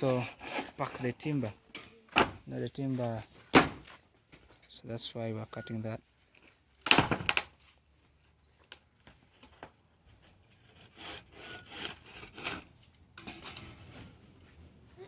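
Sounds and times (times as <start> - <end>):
hand saw cutting wood: 0.0 - 1.5, 10.5 - 12.8.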